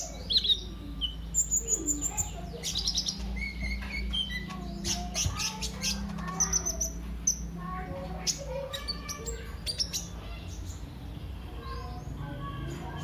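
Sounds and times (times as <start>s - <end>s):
bird singing high chirps: 0.0s - 13.0s.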